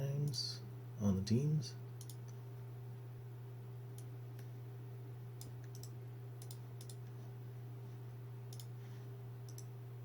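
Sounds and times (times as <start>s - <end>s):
steady low hum: 0.0s - 10.0s
computer mouse clicks: 2.0s - 2.4s, 5.4s - 7.1s, 8.5s - 8.7s, 9.5s - 9.7s.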